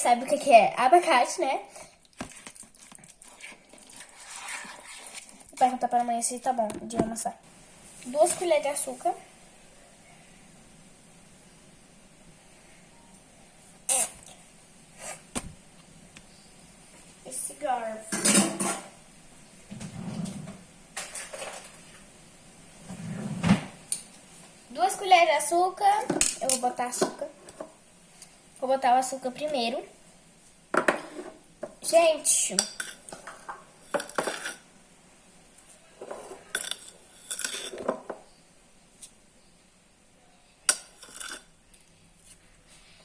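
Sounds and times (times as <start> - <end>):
kitchen things knocking and scraping: 18.1 - 19.0, 19.7 - 22.0, 30.7 - 31.8, 32.6 - 34.6, 36.0 - 38.2.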